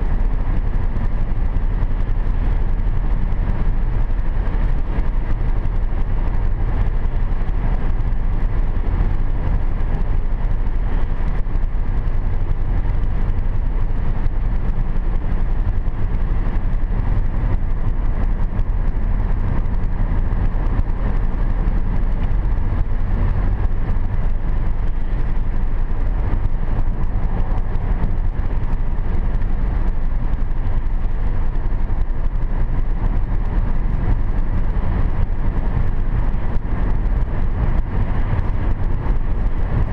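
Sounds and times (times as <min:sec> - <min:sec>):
car tyre and engine rumble: 0:00.0 - 0:39.9.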